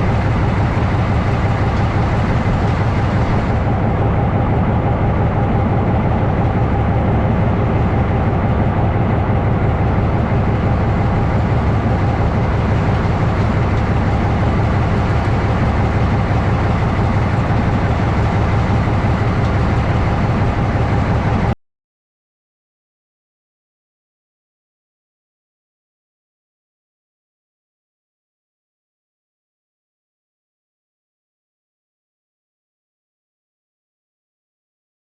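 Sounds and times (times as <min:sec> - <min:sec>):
diesel locomotive engine drone: 0:00.0 - 0:21.6.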